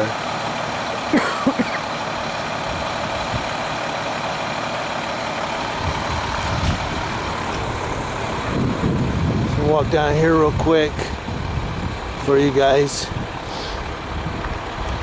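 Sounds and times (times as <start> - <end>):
heavy vehicle engine idling: 0.0 - 15.0
deep low rumble: 5.6 - 15.0.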